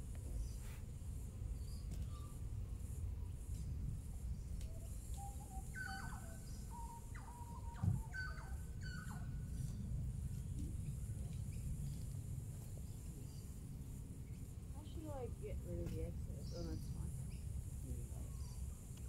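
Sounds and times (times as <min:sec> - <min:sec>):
bird singing whistled notes: 0:04.7 - 0:09.8
steady low rumble: 0:08.5 - 0:19.0.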